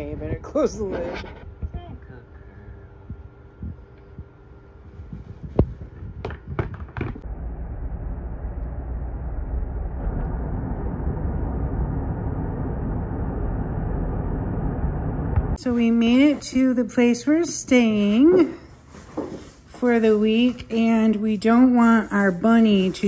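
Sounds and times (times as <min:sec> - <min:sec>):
sharp knocks: 0:06.2 - 0:07.2
car road and engine noise: 0:07.2 - 0:15.6.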